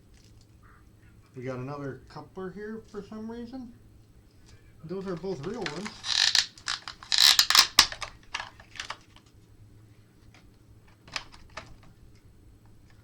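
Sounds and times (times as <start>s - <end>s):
plastic parts clicking and rustling: 4.4s - 9.4s, 10.3s - 13.0s.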